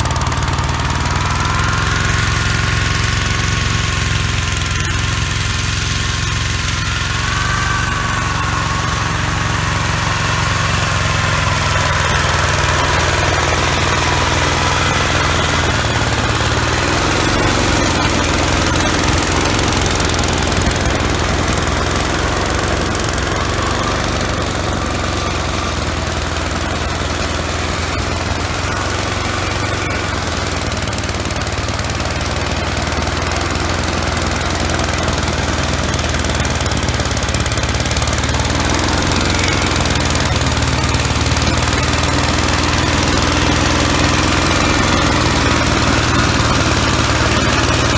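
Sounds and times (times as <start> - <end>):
high wavering whine: 0.0 - 31.4
walk-behind tractor engine running: 0.0 - 47.9.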